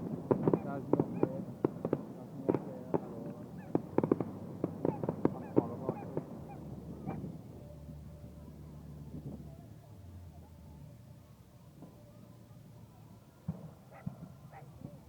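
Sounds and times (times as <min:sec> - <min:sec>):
fireworks crackling and banging: 0:00.0 - 0:09.5, 0:13.4 - 0:15.0.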